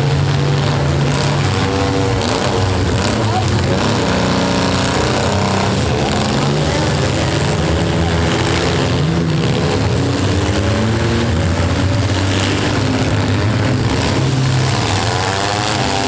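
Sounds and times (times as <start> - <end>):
engine revving up: 0.0 - 16.0
several engines running: 0.0 - 16.0.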